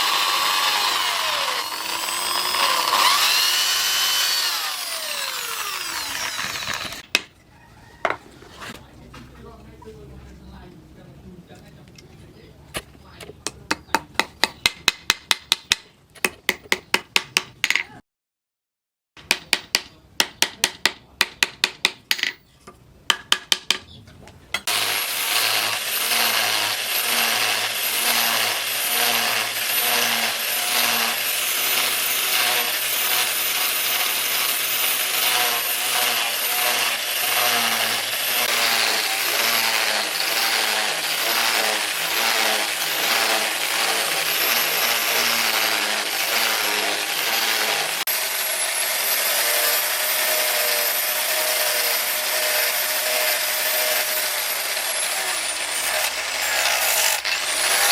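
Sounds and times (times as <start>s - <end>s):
power tool whining: 0.0s - 7.1s, 24.6s - 57.9s.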